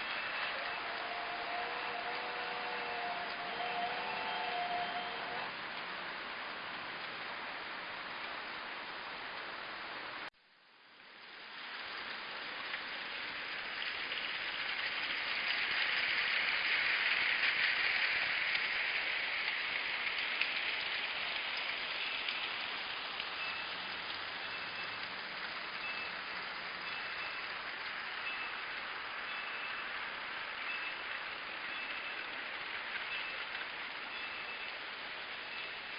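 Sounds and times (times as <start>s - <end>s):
toy train clattering on track: 0.0s - 5.5s, 13.3s - 26.1s, 30.8s - 34.8s.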